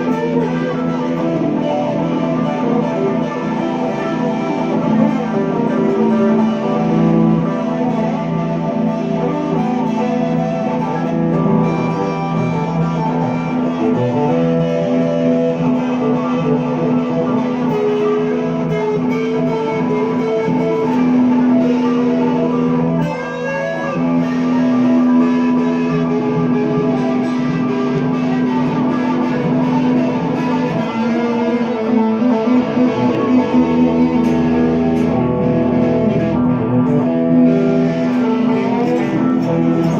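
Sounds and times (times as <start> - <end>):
blues guitar playing: 0.0 - 39.9.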